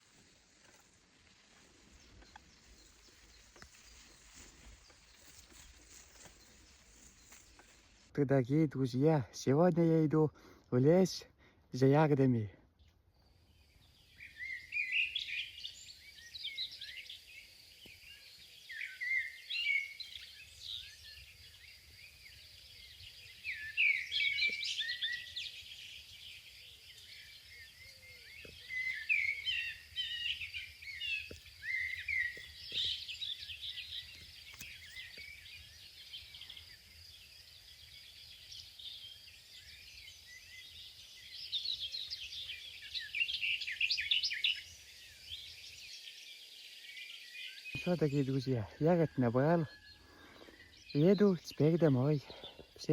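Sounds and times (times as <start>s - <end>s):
faint steady hiss: 0.0s - 8.3s
wild birds singing and chirping: 0.0s - 52.9s.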